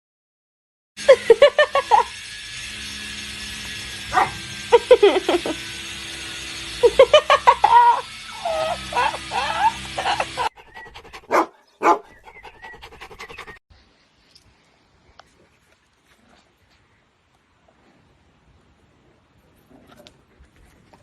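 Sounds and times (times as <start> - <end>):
dog barking and yipping: 4.1 - 4.4, 7.6 - 13.6.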